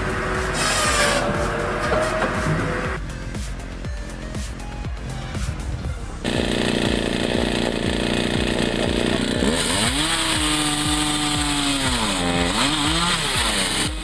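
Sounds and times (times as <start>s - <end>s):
background music with beat: 0.0s - 11.6s
chainsaw engine running: 6.2s - 14.0s.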